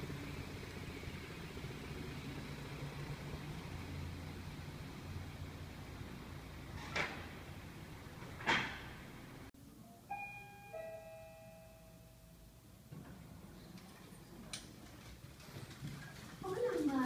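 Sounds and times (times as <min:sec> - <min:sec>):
car engine running low: 0:00.0 - 0:08.4
two-note elevator chime: 0:09.8 - 0:12.6.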